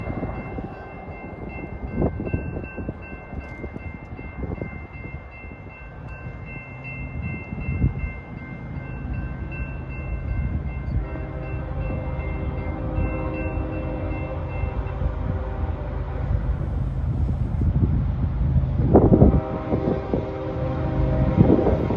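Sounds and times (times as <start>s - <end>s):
freight train rumble: 0.0s - 21.9s
wind gusting on microphone: 0.0s - 21.9s
locomotive horn chord: 10.8s - 16.8s, 19.0s - 21.9s.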